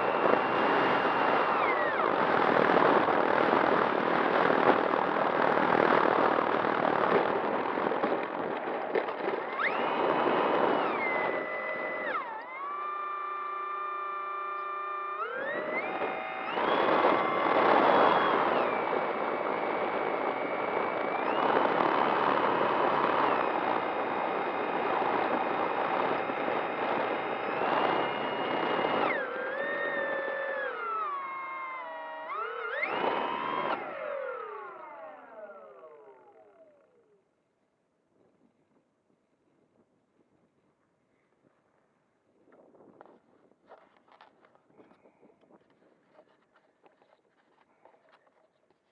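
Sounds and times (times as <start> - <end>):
wind on microphone: 0.0 - 13.1, 15.2 - 36.8, 42.3 - 48.3
electric motor propeller whining: 0.0 - 37.3.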